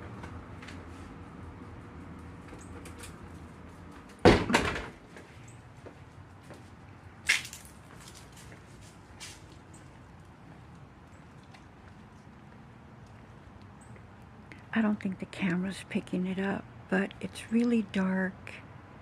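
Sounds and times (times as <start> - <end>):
door knocking shut: 4.2 - 5.0
door rattle: 4.2 - 5.0.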